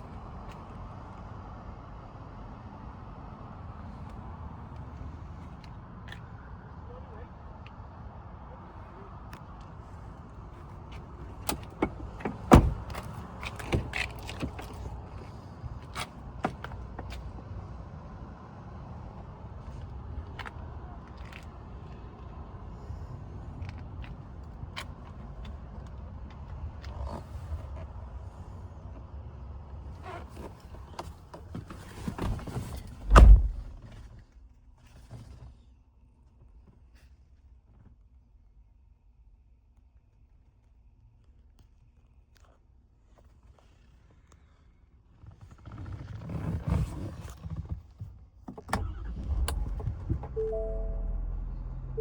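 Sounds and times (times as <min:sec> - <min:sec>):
truck door shutting: 0:11.5 - 0:14.0, 0:32.2 - 0:33.9
loud heavy thump: 0:33.0 - 0:33.9
low steady rumble: 0:49.0 - 0:52.0.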